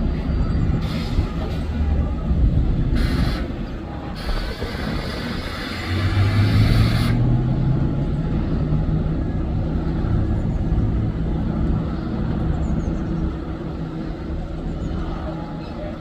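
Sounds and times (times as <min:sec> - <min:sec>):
bus engine pulling away: 0:00.0 - 0:16.0
hiss: 0:00.8 - 0:01.6, 0:02.9 - 0:07.3.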